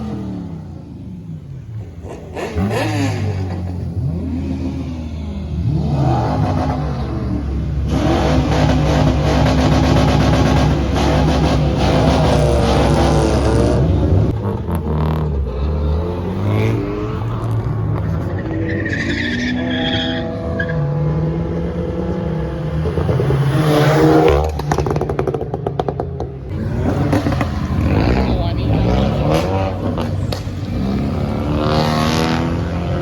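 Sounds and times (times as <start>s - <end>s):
car engines revving: 0.0s - 33.0s
cars driving past: 0.0s - 33.0s.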